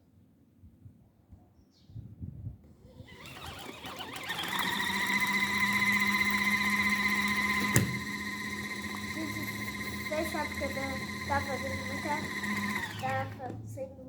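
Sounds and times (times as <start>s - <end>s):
washing machine motor humming: 3.0s - 13.6s.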